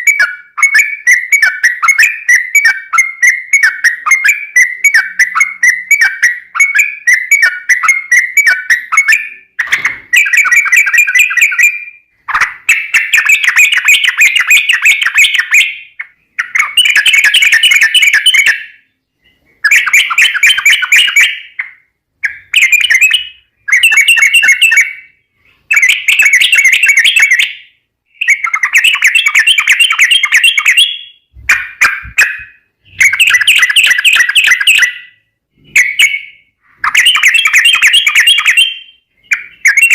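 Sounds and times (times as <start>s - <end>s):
bird singing bubbling phrases: 28.2s - 35.1s.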